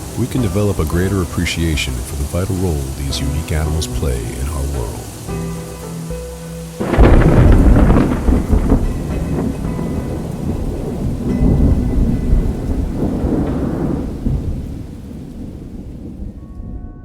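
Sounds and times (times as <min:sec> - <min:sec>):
steady rain: 0:00.0 - 0:17.0
rolling thunder: 0:06.8 - 0:17.0.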